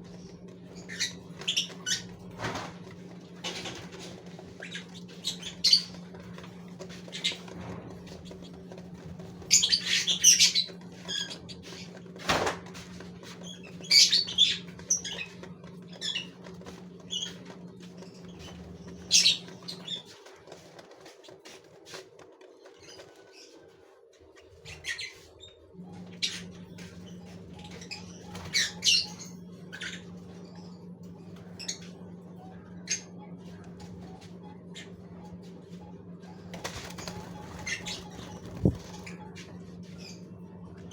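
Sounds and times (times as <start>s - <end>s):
steady low hum: 0.0s - 40.9s
finches chirping: 9.3s - 12.0s, 13.4s - 20.3s, 36.2s - 40.3s
wing flutters: 35.7s - 40.2s.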